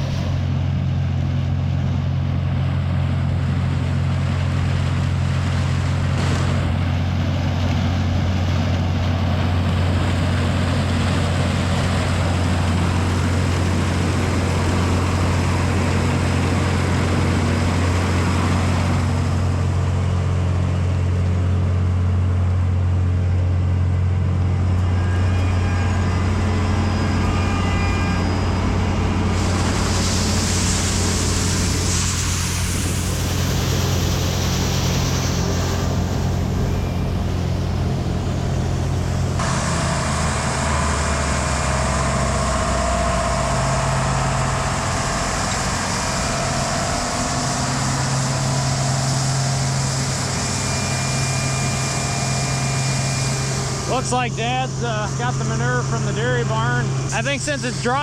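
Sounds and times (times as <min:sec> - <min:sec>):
farm machinery engine droning: 0:00.0 - 0:58.0
bright hiss: 0:28.1 - 0:38.6.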